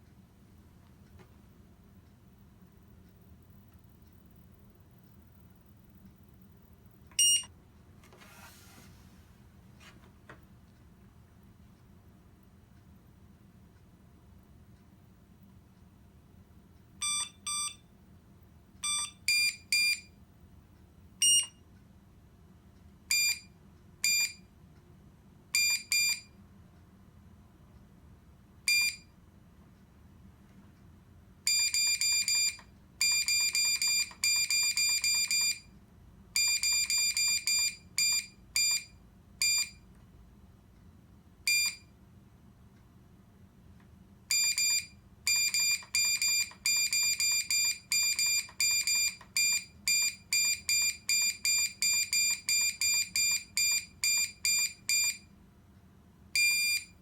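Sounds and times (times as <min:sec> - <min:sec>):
high-pitched buzzer beeps: 0:07.2 - 0:07.5, 0:17.0 - 0:17.8, 0:18.8 - 0:20.1, 0:21.2 - 0:21.6, 0:23.1 - 0:24.5, 0:31.5 - 0:35.7, 0:36.4 - 0:39.8, 0:44.3 - 0:55.3, 0:56.4 - 0:57.0.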